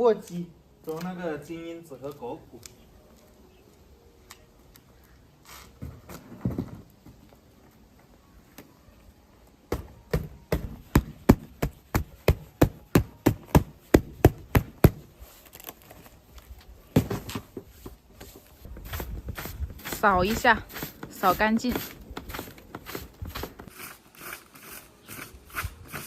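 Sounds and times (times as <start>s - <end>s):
rustling: 14.8s - 26.0s.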